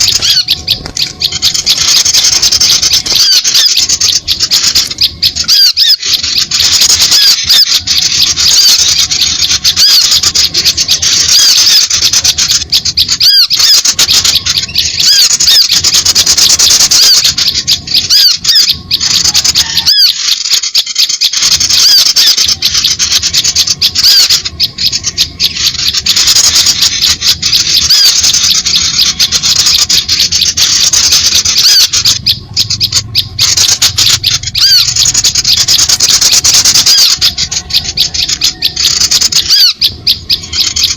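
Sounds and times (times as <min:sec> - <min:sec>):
small birds chirping and twittering: 0:00.0 - 0:40.9.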